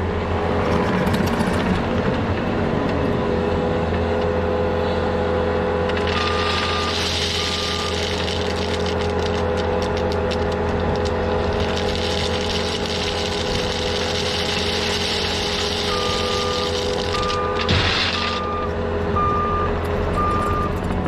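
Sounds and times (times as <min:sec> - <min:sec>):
heavy machine engine running: 0:00.0 - 0:21.0
reversing alarm beeping: 0:06.1 - 0:08.7, 0:15.4 - 0:20.8.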